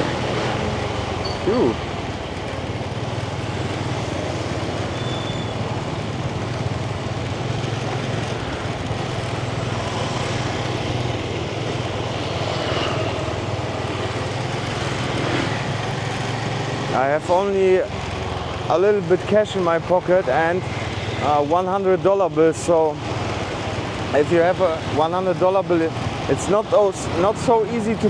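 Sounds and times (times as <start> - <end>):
motorbike engine running: 0.0 - 28.0
street and traffic noise: 0.0 - 28.0.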